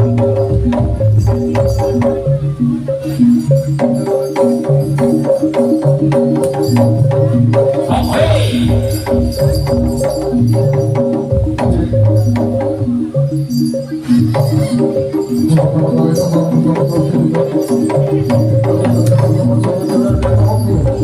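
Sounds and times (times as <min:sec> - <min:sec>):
gamelan metal keys and gongs: 0:00.0 - 0:21.0
low bass notes: 0:07.0 - 0:10.5
sharp drum strokes: 0:07.8 - 0:10.5.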